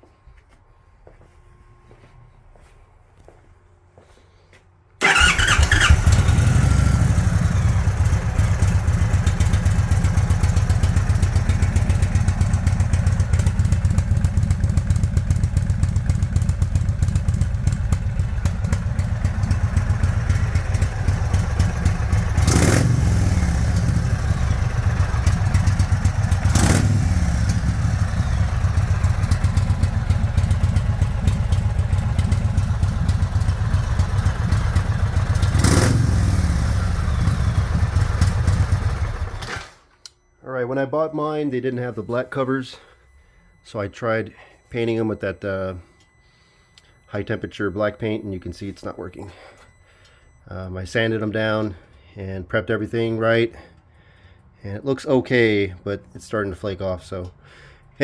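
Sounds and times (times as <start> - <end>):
motorcycle engine idling: 5.0 - 39.6.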